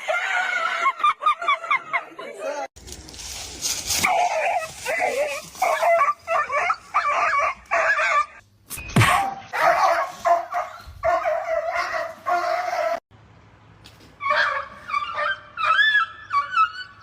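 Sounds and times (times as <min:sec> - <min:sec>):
dog barking and yipping: 0:04.0 - 0:08.4, 0:09.1 - 0:13.0, 0:14.2 - 0:17.0.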